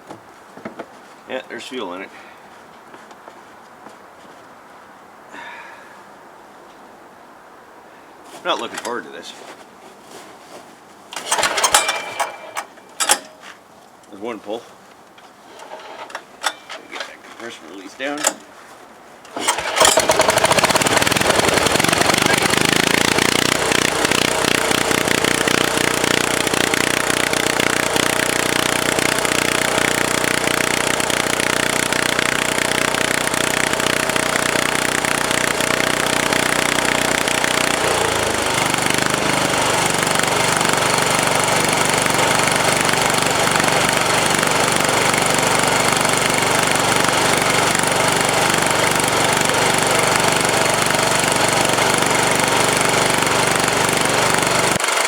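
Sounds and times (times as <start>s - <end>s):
small diesel engine running: 11.2s - 12.7s, 19.3s - 55.0s.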